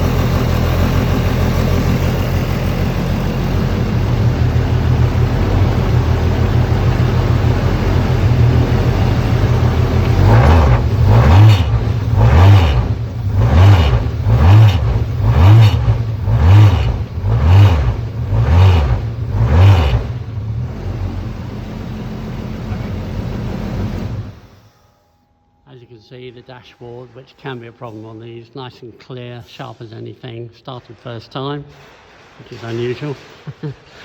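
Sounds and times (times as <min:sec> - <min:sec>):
race car engine idling and revving: 0:00.0 - 0:24.6.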